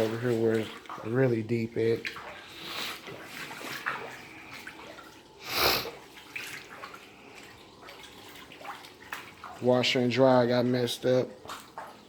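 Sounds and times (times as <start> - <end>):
wading through water: 0.0 - 12.0.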